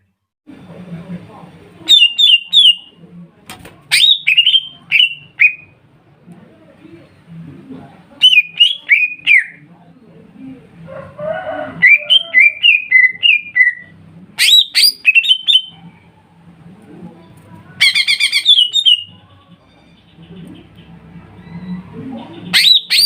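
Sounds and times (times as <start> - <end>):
birds singing whistled phrases: 1.9 - 2.9, 3.9 - 5.8, 8.2 - 9.6, 11.8 - 15.8, 17.8 - 19.2, 21.4 - 23.0.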